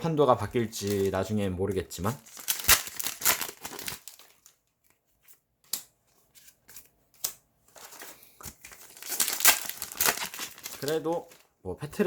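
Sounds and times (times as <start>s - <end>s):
foil wrappers crinkling: 0.6s - 5.0s, 7.8s - 11.6s.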